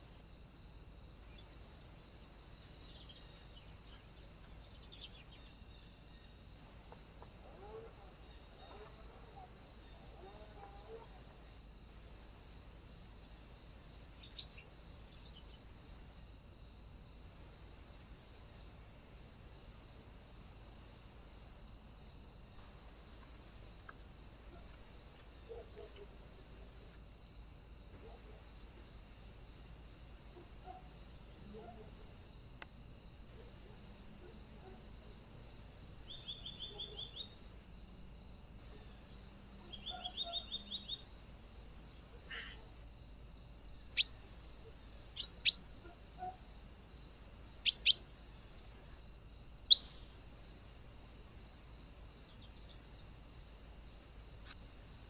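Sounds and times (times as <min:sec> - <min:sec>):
small birds chirping: 0:13.3 - 0:15.6, 0:36.0 - 0:37.4, 0:39.6 - 0:41.1, 0:43.9 - 0:46.4, 0:47.6 - 0:48.2, 0:49.7 - 0:50.0.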